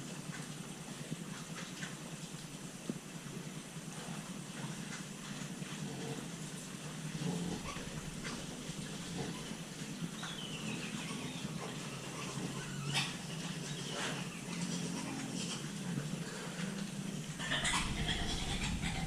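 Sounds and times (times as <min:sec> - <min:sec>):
piglets grunting and squeaking: 0:07.1 - 0:10.1, 0:10.7 - 0:19.0.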